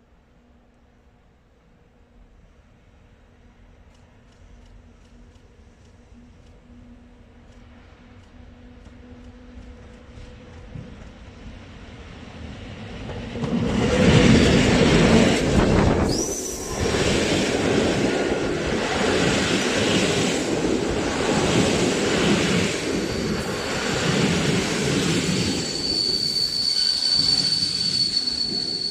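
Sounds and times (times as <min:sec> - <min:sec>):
train wheels rumbling over rails: 0:03.2 - 0:28.9
wheel squeal: 0:25.3 - 0:28.9.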